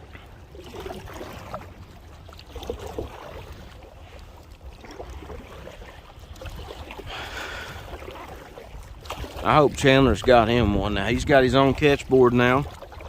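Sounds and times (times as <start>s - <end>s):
paddle splashing in water: 0.0s - 13.0s
wind rumble on microphone: 4.9s - 13.0s.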